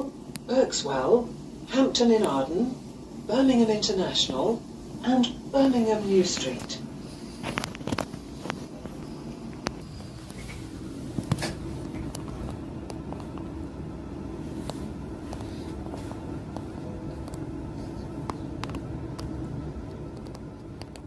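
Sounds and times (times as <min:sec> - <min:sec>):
train rumbling: 0:00.0 - 0:21.0
train clicks and rattles: 0:07.4 - 0:13.5.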